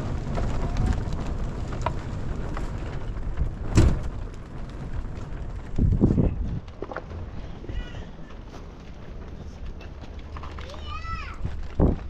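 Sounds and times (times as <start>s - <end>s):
raindrops ticking: 0.0s - 11.5s
wind buffeting: 0.0s - 12.0s.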